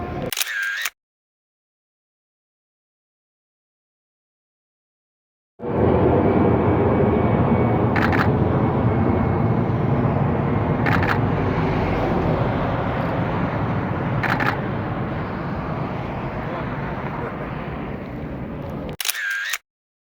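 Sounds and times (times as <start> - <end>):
jet engines roaring: 0.0 - 0.3, 5.6 - 19.0
camera shutter firing: 0.3 - 0.9, 10.8 - 11.2, 14.2 - 14.6, 19.0 - 19.6.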